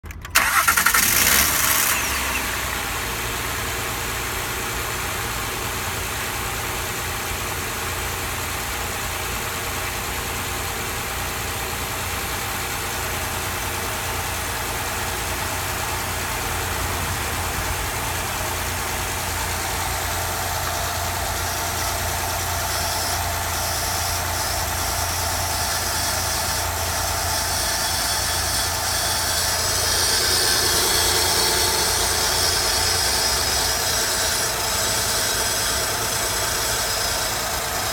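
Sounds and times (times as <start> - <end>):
car engine running: 0.0 - 37.9
high shriek: 21.0 - 37.9.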